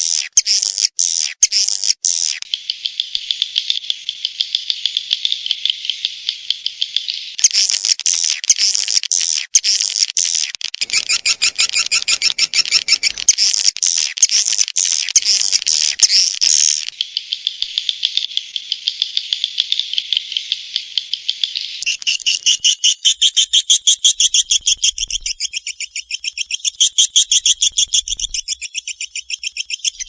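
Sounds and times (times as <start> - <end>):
buzzing bird trills: 10.8 - 16.8.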